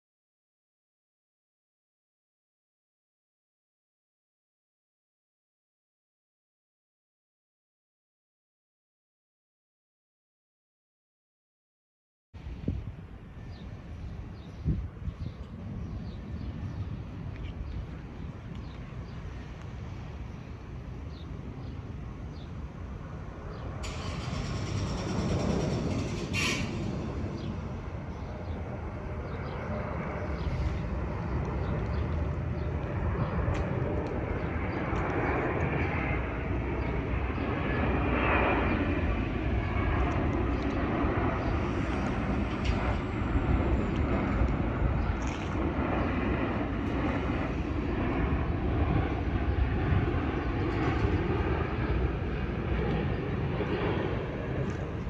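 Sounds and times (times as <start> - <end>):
jet engines rumbling: 12.4 - 55.0.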